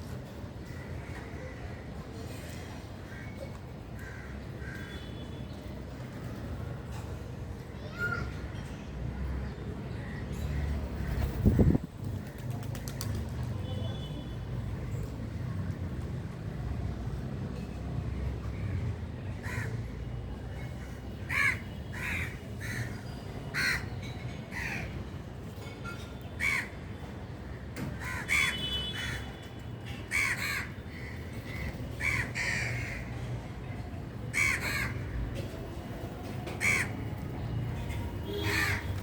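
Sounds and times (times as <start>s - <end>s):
crows cawing: 4.0s - 5.0s, 19.4s - 19.8s, 21.3s - 22.9s, 23.5s - 23.9s, 26.4s - 26.7s, 28.0s - 29.3s, 30.1s - 33.1s, 34.3s - 35.2s, 36.6s - 37.0s, 38.3s - 39.0s.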